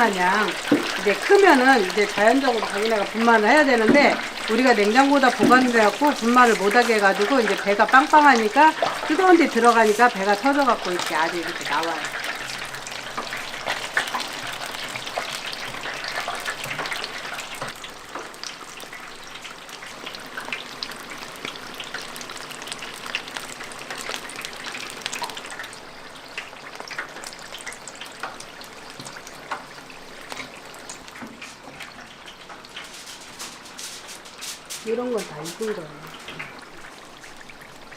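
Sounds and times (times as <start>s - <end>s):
frogs deep-frying in hot oil: 0.0s - 37.9s.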